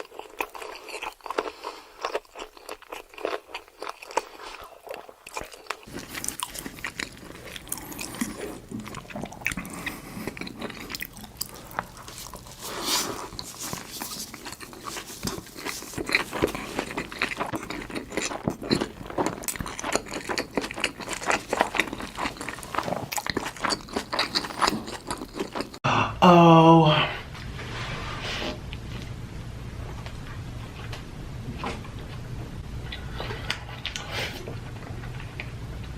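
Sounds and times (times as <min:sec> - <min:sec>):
crunchy chewing: 0:00.0 - 0:25.8
person speaking: 0:25.8 - 0:27.2.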